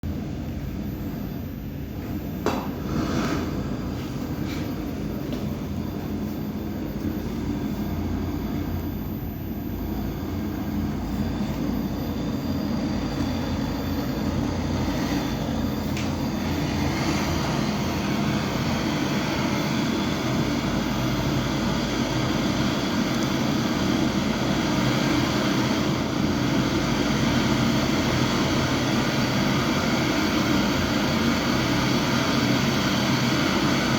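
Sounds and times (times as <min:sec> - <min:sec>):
motor or fan humming: 0:00.0 - 0:33.9.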